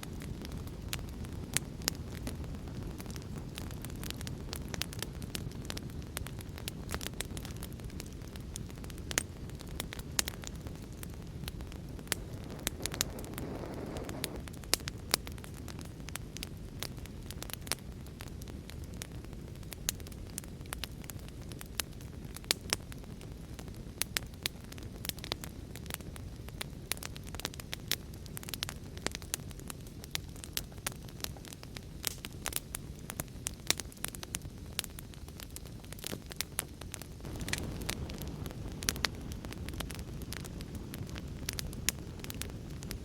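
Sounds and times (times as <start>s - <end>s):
wood fire crackling and popping: 0.0s - 43.0s
storm rain: 12.1s - 14.4s, 37.2s - 38.6s.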